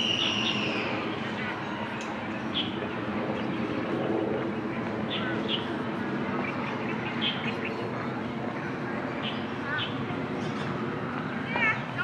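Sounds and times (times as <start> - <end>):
birds chirping: 0.0 - 1.1, 2.3 - 8.0
steady background din: 0.0 - 12.0.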